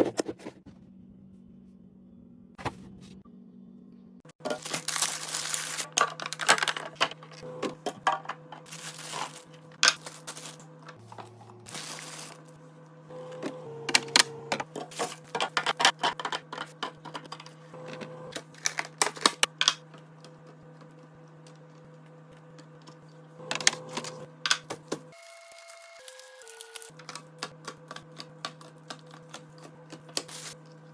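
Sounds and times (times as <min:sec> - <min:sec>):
containers clicking and clacking: 0:05.8 - 0:10.0, 0:14.0 - 0:17.6.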